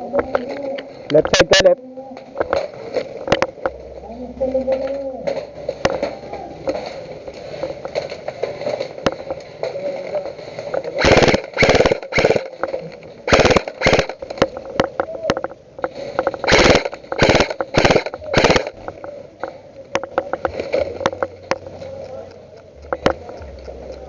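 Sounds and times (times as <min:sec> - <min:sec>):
steady hum: 0:10.4 - 0:24.0
airsoft guns firing bursts: 0:11.0 - 0:12.6, 0:13.3 - 0:14.4, 0:16.2 - 0:18.9.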